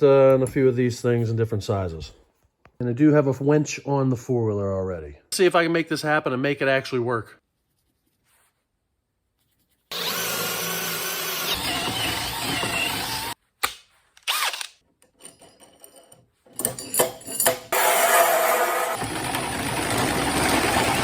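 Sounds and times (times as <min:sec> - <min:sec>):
power tools cutting wood: 0:09.9 - 0:13.4, 0:14.2 - 0:14.8, 0:17.7 - 0:21.0.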